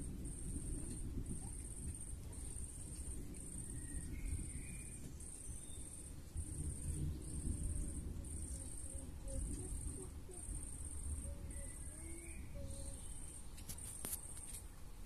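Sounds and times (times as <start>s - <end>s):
low rumble: 0.0s - 13.4s
insect pulsing buzz: 6.4s - 14.2s.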